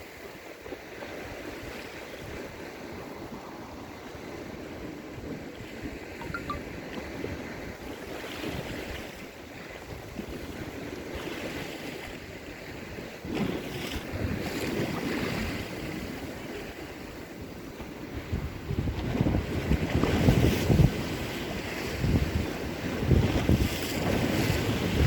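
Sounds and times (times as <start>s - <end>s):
sea waves washing ashore: 0.0s - 25.0s
wind buffeting microphone: 7.1s - 25.0s.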